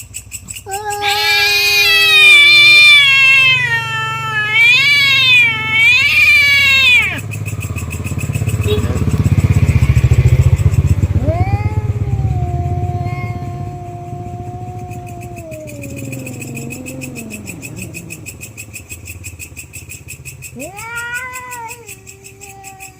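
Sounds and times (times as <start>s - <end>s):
cat yowling: 0.5s - 7.3s, 11.2s - 18.5s, 20.6s - 22.9s.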